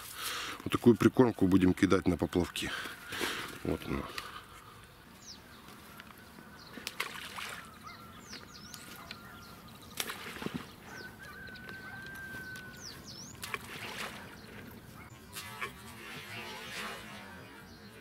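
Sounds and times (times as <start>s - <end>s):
high falling bird calls: 0.0s - 18.0s
groundbait splashing into water: 6.8s - 7.7s, 10.0s - 10.8s, 13.4s - 14.4s.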